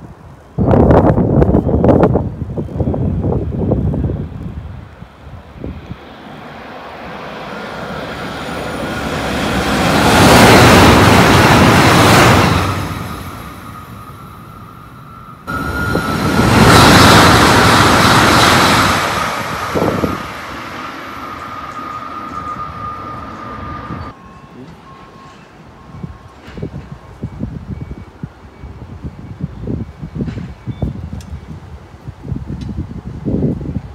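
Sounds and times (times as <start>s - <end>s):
trains passing at speed: 0.0s - 33.9s
steady high whine: 5.4s - 24.2s.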